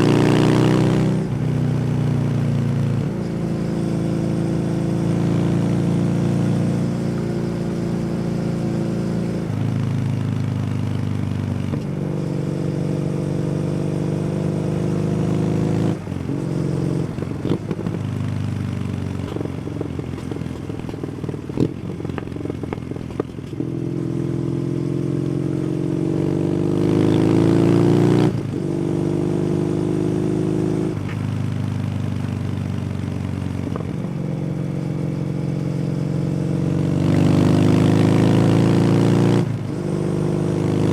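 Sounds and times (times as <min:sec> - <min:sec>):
motorcycle engine running: 0:00.0 - 0:40.9
exhaust crackling and popping: 0:18.9 - 0:23.7.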